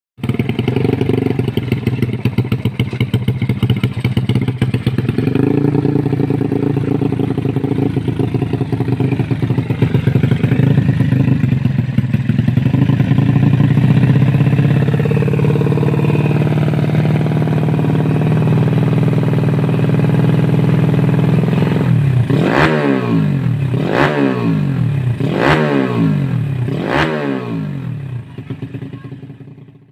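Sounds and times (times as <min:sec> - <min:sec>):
motorcycle engine idling and revving: 0:00.2 - 0:29.9.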